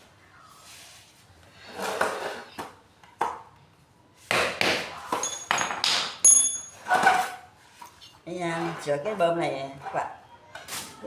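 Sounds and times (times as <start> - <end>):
metallic ping ringing: 5.2 - 6.9
metal parts knocking and scraping: 5.2 - 7.2.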